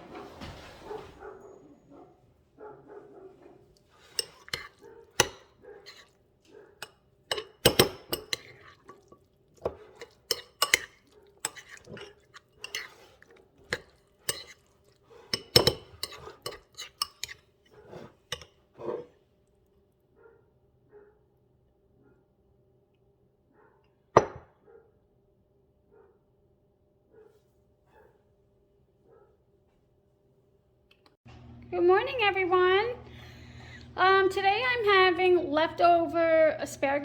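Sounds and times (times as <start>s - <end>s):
dishes and cutlery clattering: 4.0s - 6.1s, 6.8s - 17.4s.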